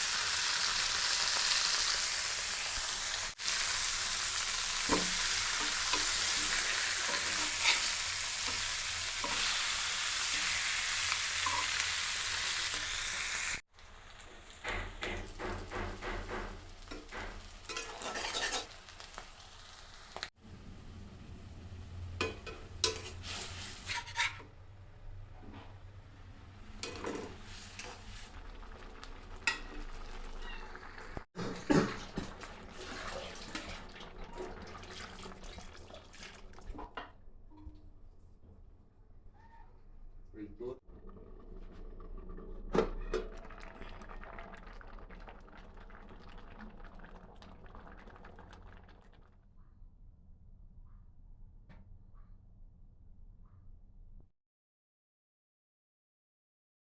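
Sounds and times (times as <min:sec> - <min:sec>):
fish sizzling in a pan: 0:00.0 - 0:14.0, 0:16.6 - 0:20.3
utensil scraping a pan: 0:04.9 - 0:09.9, 0:17.4 - 0:18.8, 0:22.8 - 0:24.5.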